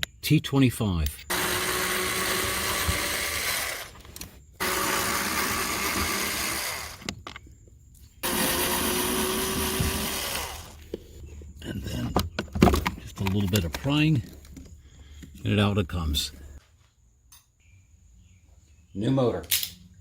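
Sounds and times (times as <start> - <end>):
power screwdriver running: 1.3 - 7.1, 8.2 - 10.9.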